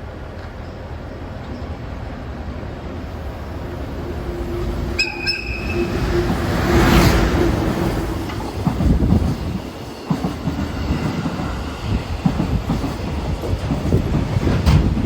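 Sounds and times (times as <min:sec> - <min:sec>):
freight train rumbling past: 0:00.0 - 0:15.0
high-pitched train horn toot: 0:04.9 - 0:07.2.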